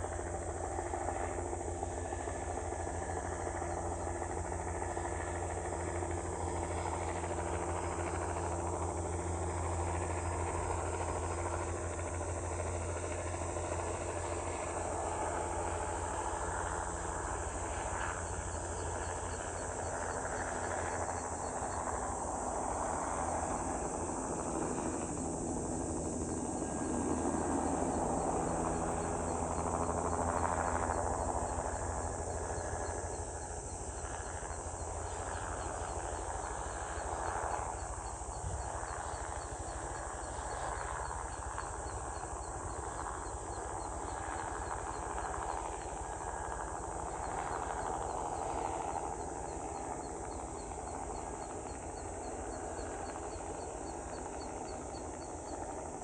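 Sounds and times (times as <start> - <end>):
insects chirping: 0.0 - 56.0
low hum with held tones: 0.0 - 56.0.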